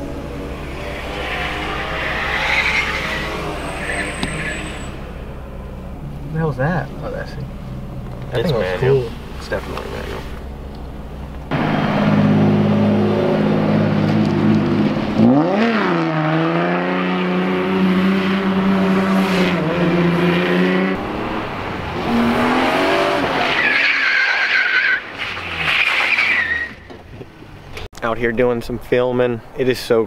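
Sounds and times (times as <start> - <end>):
tires squealing: 0.0 - 5.5, 11.5 - 27.8
car engine revving: 0.0 - 26.5.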